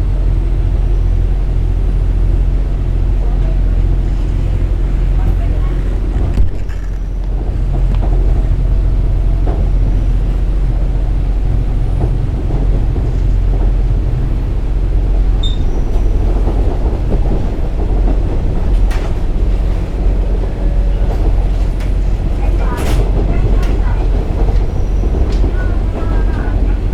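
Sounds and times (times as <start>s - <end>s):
diesel railcar engine rumble: 0.0s - 26.9s
train wheels on rails: 0.2s - 26.9s
faint high squeak: 15.4s - 16.1s.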